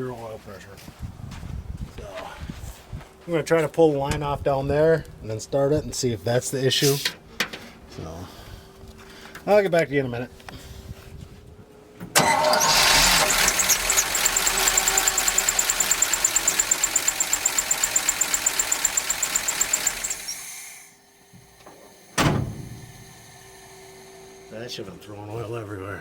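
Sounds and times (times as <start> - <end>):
truck engine running: 12.4 - 20.4
fast high engine ticking: 12.6 - 20.4.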